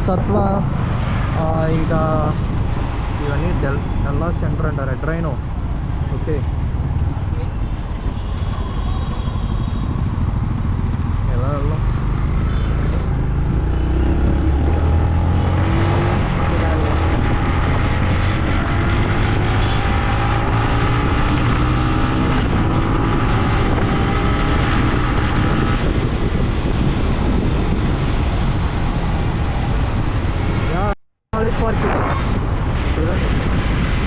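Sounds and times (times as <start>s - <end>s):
motorcycle engine: 4.7s - 30.6s.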